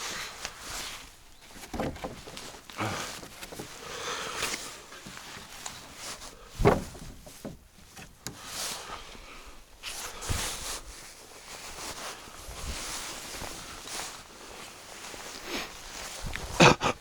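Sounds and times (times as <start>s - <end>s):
rustle of junk being dumped: 0.0s - 16.8s
heavy thud: 6.6s - 7.6s.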